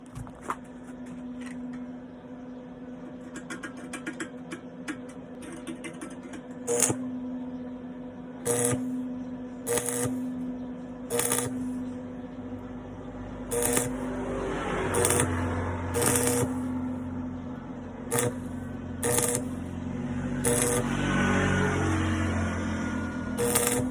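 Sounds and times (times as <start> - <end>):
arc welder humming: 0.0 - 23.9
welding arc crackling: 6.7 - 7.0, 8.5 - 9.0, 9.7 - 10.4, 11.1 - 12.0, 13.4 - 17.2, 17.9 - 23.9.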